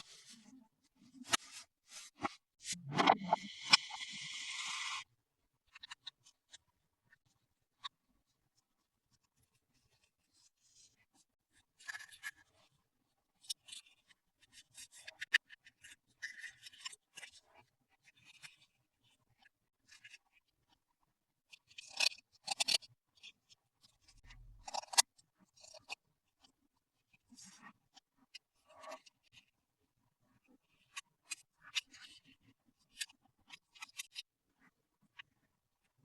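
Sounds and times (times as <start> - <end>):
plastic toys clicking and rustling: 21.7 - 22.9.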